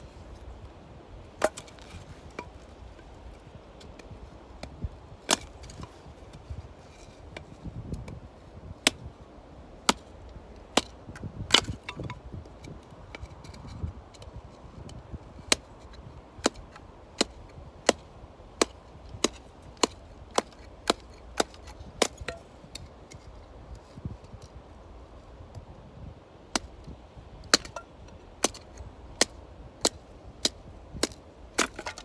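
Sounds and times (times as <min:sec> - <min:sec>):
firewood being chopped: 0:01.3 - 0:02.7, 0:03.9 - 0:06.4, 0:08.8 - 0:09.1, 0:10.7 - 0:12.2, 0:16.4 - 0:23.3, 0:26.5 - 0:26.7, 0:27.4 - 0:32.0.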